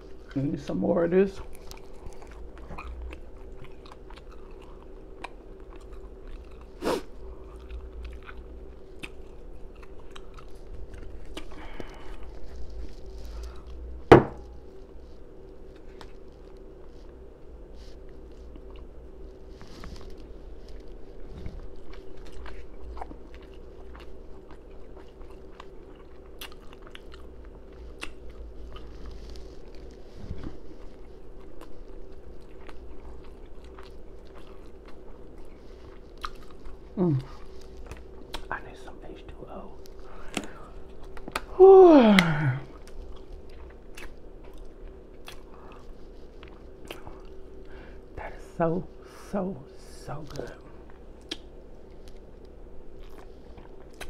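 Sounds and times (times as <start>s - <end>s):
chewing and lip-smacking: 1.4s - 13.8s, 18.0s - 41.6s, 42.2s - 47.8s, 50.3s - 54.0s
loud bite: 41.2s - 42.9s.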